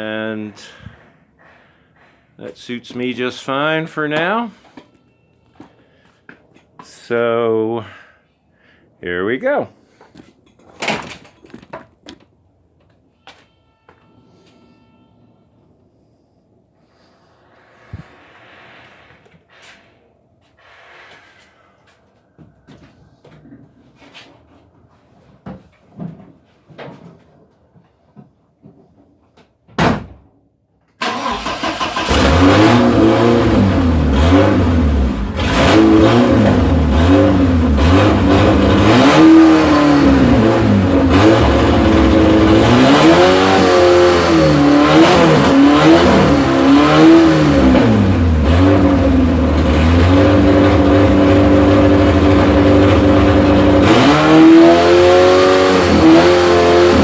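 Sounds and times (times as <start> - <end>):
car engine revving without muffler: 31.1 - 57.0.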